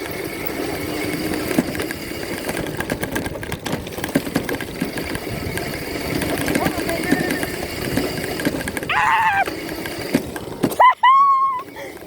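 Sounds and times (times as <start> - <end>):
sharp knocks and rattles: 0.0 - 8.9
dirt bike engine running: 0.0 - 12.0.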